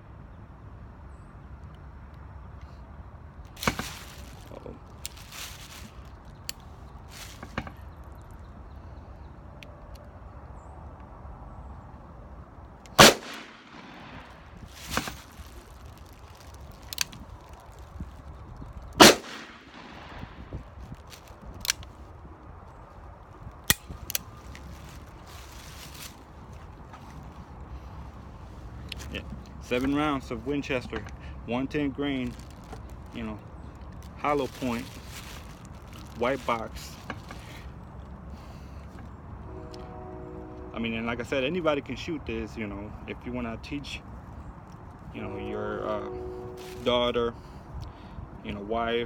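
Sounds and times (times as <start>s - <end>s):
revolver gunshots: 13.0s - 14.5s, 19.0s - 20.4s.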